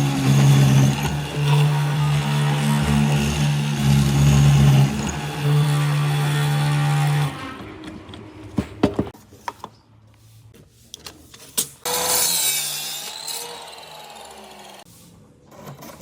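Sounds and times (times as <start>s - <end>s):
wood rubbing or scraping: 0.0s - 9.1s.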